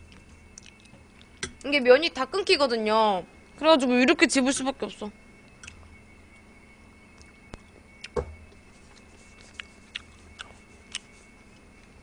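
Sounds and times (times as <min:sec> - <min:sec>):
faint hum: 0:00.0 - 0:12.0
mouth chewing wet clicks: 0:00.1 - 0:00.9, 0:09.4 - 0:11.1.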